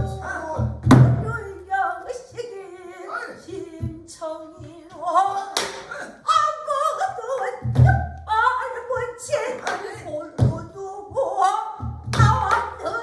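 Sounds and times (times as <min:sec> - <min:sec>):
person singing long wavering notes: 0:00.0 - 0:05.6.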